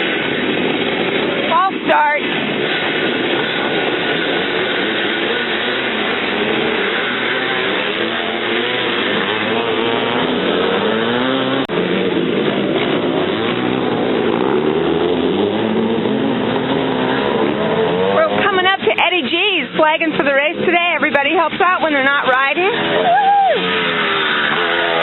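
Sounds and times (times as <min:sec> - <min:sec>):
motorcycles revving: 0:00.0 - 0:25.0.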